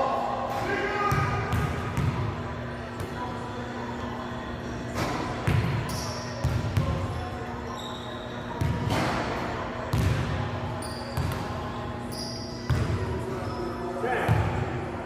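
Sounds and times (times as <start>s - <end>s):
basketball bouncing on court: 1.1s - 2.3s, 5.4s - 5.8s, 8.6s - 9.0s, 9.9s - 10.3s, 12.6s - 13.0s
shoe squeaks: 5.8s - 6.4s, 7.6s - 9.0s, 10.8s - 14.0s.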